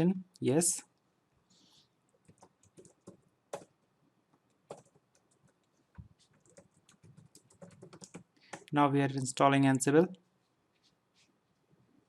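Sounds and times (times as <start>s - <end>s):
computer keyboard typing: 2.2s - 3.7s, 4.5s - 8.7s.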